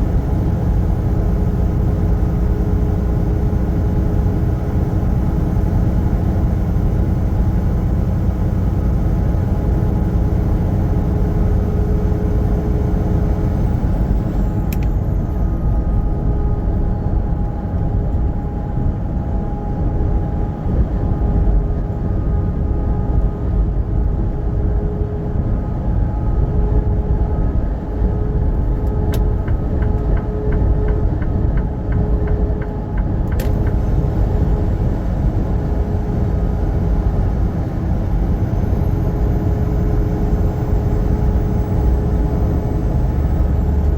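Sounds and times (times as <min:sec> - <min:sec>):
truck engine and road rumble: 0:00.0 - 0:43.9
constant tonal drone: 0:33.5 - 0:43.9.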